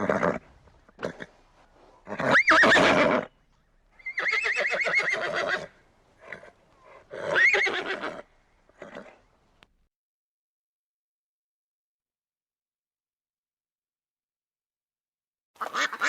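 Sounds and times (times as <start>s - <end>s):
horse whinnying: 0.0s - 1.4s, 2.0s - 3.3s, 4.0s - 9.2s.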